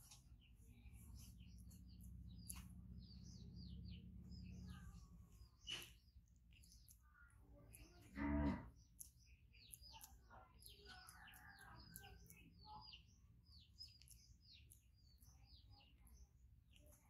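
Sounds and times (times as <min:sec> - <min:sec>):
small birds twittering: 0:00.0 - 0:17.0.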